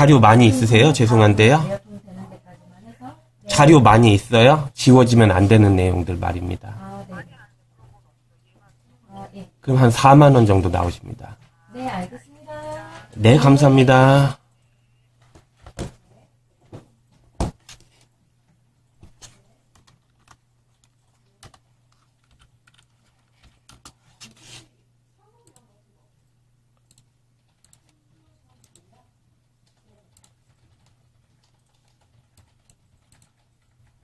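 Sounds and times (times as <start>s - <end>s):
computer keyboard typing: 19.2s - 24.0s, 26.8s - 28.9s, 29.6s - 34.0s.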